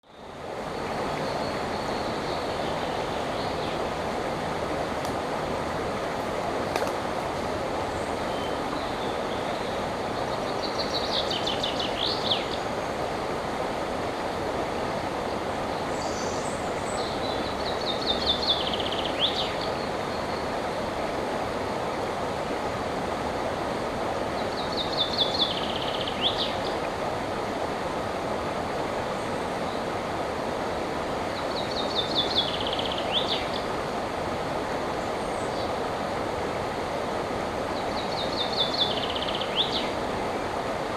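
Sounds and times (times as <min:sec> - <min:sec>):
songbird singing: 0:00.0 - 0:13.1, 0:15.2 - 0:20.9, 0:24.3 - 0:27.0, 0:30.7 - 0:33.8, 0:34.9 - 0:35.9, 0:37.7 - 0:40.1
river water flowing: 0:00.0 - 0:40.9.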